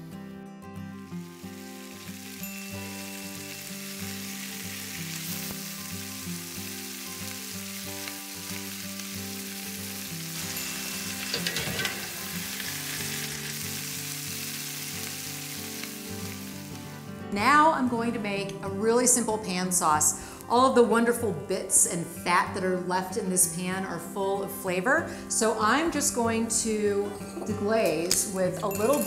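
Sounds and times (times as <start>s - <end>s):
chicken sizzling in a skillet: 1.0s - 17.1s
metal tongs clinking on pan: 10.4s - 13.6s, 27.2s - 29.0s.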